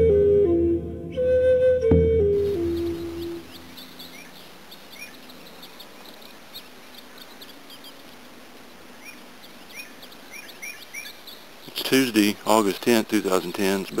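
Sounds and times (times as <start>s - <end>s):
flute note: 0.0s - 3.5s
background hiss: 0.0s - 14.0s
songbirds chirping: 0.0s - 14.0s.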